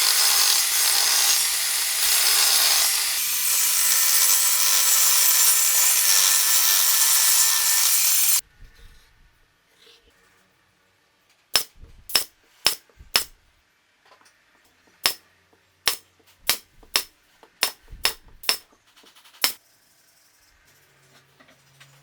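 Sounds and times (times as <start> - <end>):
hammer striking wood: 11.6 - 13.4, 15.0 - 15.2, 15.9 - 18.6.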